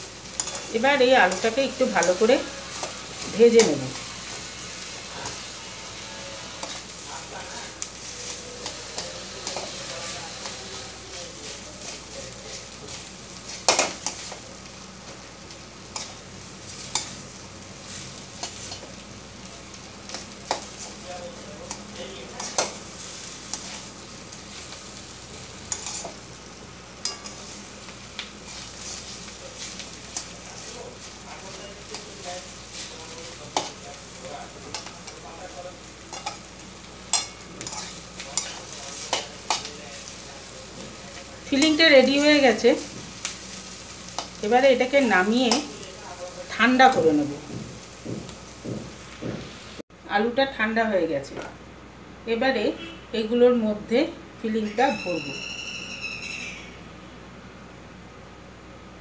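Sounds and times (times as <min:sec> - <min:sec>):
filling sizzling in a pan: 0:00.0 - 0:49.9
metal spatula scraping pan: 0:00.3 - 0:04.4, 0:37.1 - 0:39.7.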